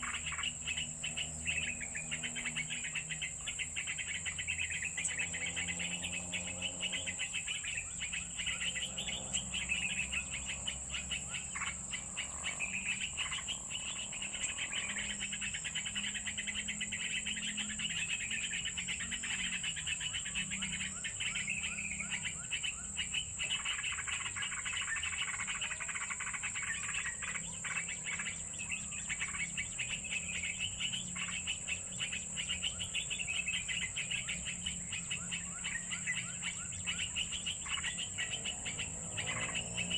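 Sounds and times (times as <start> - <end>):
bird chirps: 0.0 - 39.9
insects chirring: 0.0 - 39.9.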